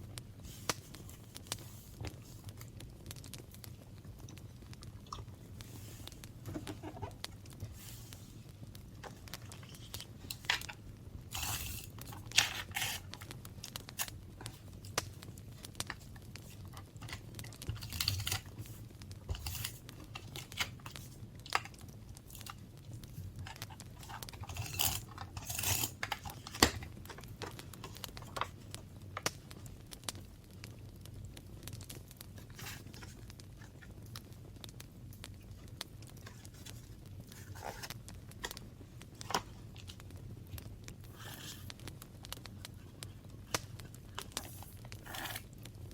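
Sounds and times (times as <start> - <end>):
paper rustling and tearing: 9.0 - 14.7, 16.4 - 21.7, 23.4 - 28.5, 36.2 - 37.9, 44.2 - 45.5.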